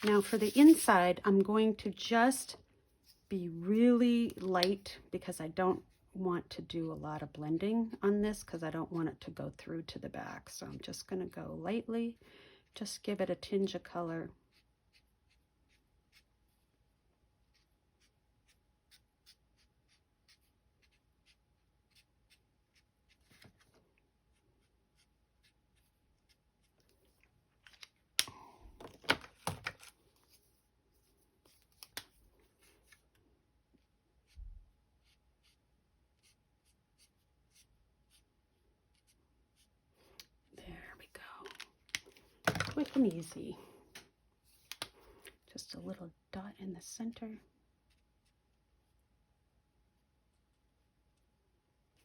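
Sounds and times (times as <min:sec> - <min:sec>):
marker tip stroking on cardstock: 0:00.0 - 0:00.9.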